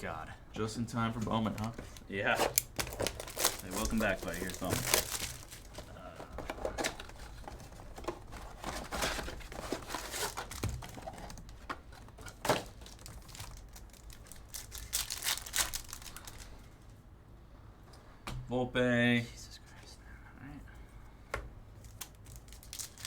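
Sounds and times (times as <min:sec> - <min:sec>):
foil wrappers tearing and crinkling: 0:01.2 - 0:16.6, 0:21.8 - 0:23.0.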